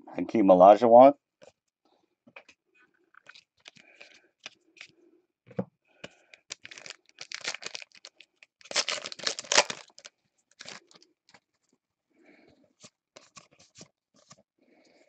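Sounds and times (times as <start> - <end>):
wrapper crinkling and tearing: 6.4 - 11.0.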